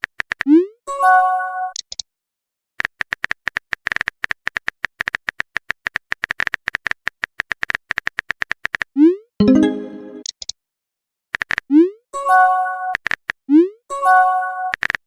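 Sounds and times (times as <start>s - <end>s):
message chime: 9.4s - 10.3s.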